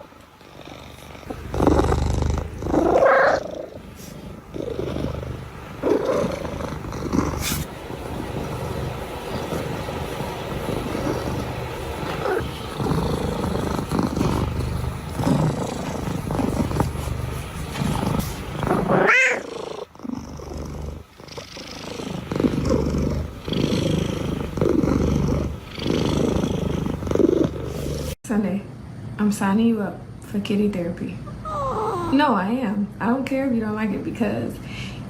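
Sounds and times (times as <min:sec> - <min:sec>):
cat purring: 0:00.0 - 0:28.2
cat yowling: 0:18.9 - 0:19.5, 0:31.4 - 0:32.2.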